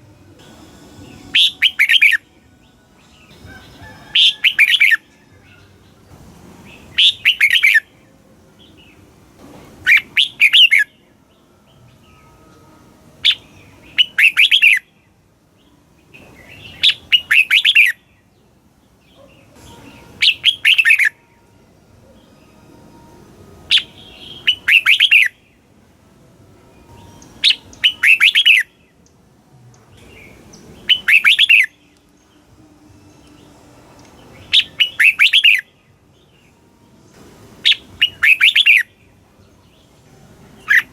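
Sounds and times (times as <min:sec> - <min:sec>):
bird singing short bright phrases: 0:30.0 - 0:31.8.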